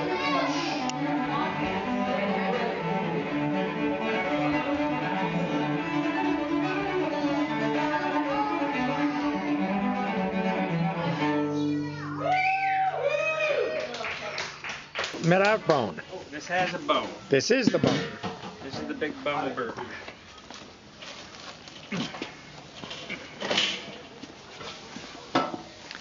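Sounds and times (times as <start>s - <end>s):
cello: 0.0s - 12.0s
violins playing sustained notes: 0.0s - 12.0s.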